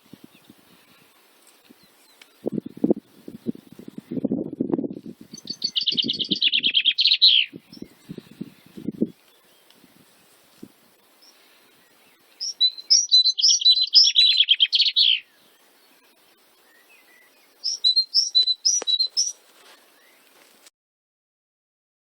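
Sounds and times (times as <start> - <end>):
songbird chirping and trilling: 5.3 - 10.0, 11.2 - 20.4.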